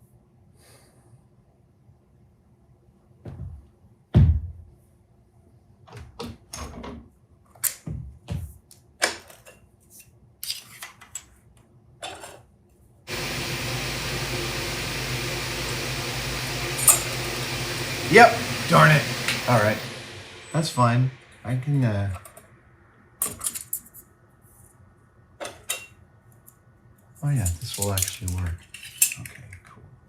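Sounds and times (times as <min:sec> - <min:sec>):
steady machine noise: 0:13.1 - 0:22.3.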